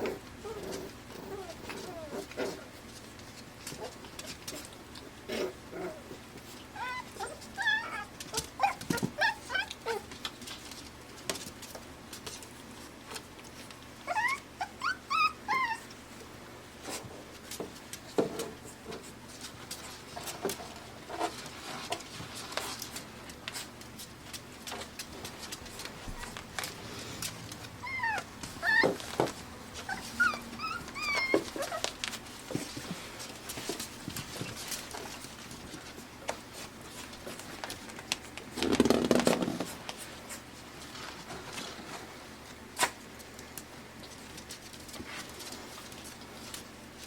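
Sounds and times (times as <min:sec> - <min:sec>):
puppies whimpering and yipping: 0:00.4 - 0:02.6, 0:06.0 - 0:10.1, 0:14.0 - 0:16.2, 0:25.8 - 0:26.5, 0:27.6 - 0:32.6.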